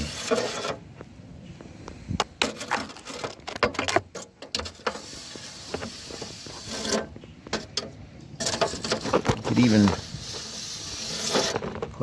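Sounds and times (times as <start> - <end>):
lint brush scraping in vent: 0.0 - 0.8, 4.2 - 7.8, 8.4 - 12.0.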